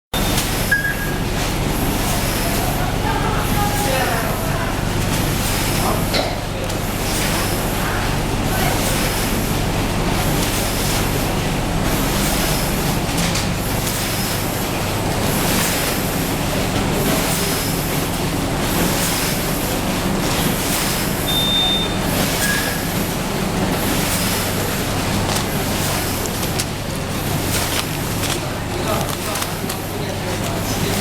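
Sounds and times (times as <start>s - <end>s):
machine mechanical hum: 0.2s - 31.0s
high beep: 0.7s - 1.2s, 21.3s - 22.7s.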